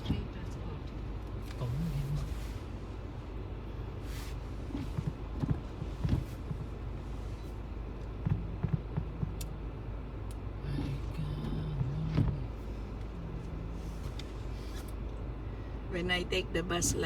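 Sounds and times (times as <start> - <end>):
car road and engine rumble: 0.0 - 17.0
short knocks and thumps: 4.7 - 7.0, 8.1 - 9.4.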